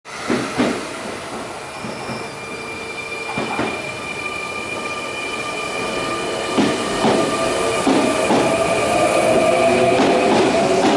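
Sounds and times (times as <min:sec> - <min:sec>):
train wheel rumble: 0:03.3 - 0:04.1, 0:05.8 - 0:10.9.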